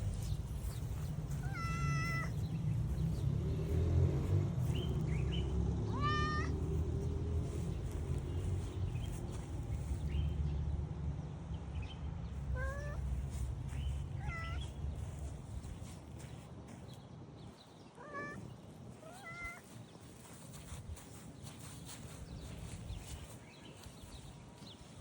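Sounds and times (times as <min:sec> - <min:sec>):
cat meowing: 0:01.4 - 0:02.4, 0:05.9 - 0:06.6, 0:12.5 - 0:13.0, 0:14.2 - 0:14.7, 0:18.0 - 0:18.4, 0:19.0 - 0:19.6.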